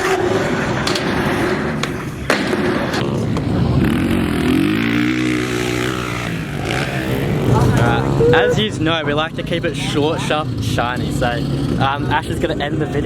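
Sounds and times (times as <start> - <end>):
skateboard clacks: 0.0 - 3.6
skateboard wheels rolling: 0.0 - 3.8
vehicle engine passing: 0.0 - 13.0.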